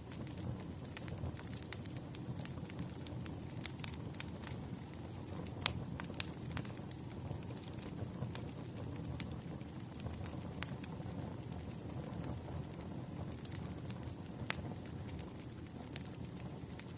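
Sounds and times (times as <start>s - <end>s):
wood fire burning: 0.0s - 16.9s.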